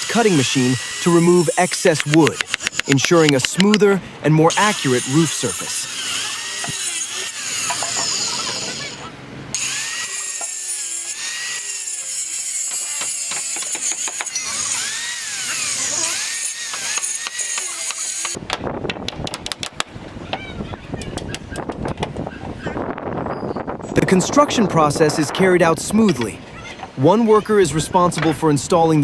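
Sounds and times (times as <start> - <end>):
electric saw cutting wood: 0.0 - 3.7, 4.5 - 18.4.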